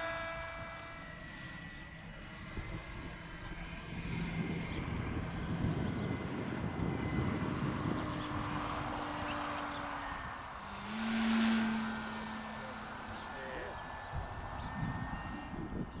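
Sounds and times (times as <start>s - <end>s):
model aeroplane motor whining: 0.0s - 16.0s.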